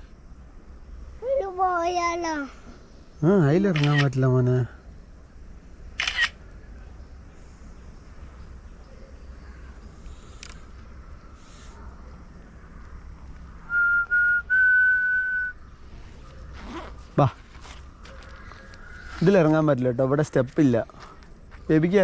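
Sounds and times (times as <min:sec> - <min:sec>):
faint outdoor background noise: 0:00.0 - 0:22.0
person whistling high notes: 0:13.7 - 0:15.5.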